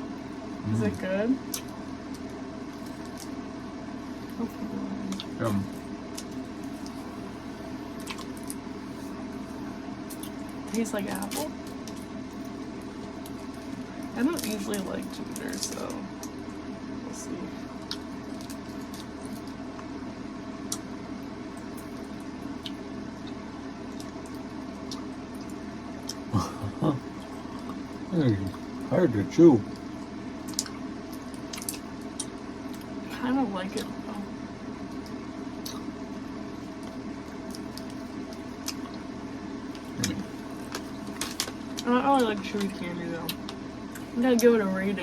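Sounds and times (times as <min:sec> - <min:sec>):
low room hum: 0:00.0 - 0:45.0
person chewing candy: 0:08.0 - 0:08.6, 0:09.4 - 0:10.6, 0:17.7 - 0:19.6, 0:21.6 - 0:28.8, 0:29.7 - 0:32.9, 0:35.0 - 0:36.0, 0:36.6 - 0:39.1, 0:39.7 - 0:41.9
wet mouth clicks: 0:20.7 - 0:20.9, 0:30.5 - 0:30.8.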